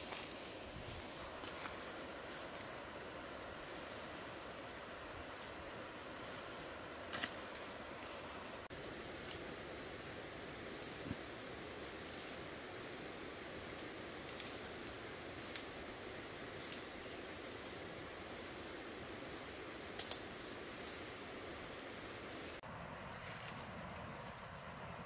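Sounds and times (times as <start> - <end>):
thin high insect-like tone: 0.0 - 22.6
outdoor background hiss: 0.0 - 25.0
sharp clicks: 20.0 - 20.2.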